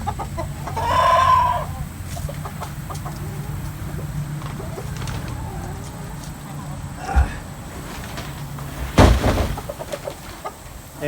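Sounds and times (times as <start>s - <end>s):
rooster crowing: 0.0s - 7.6s
hens clucking: 0.0s - 11.0s.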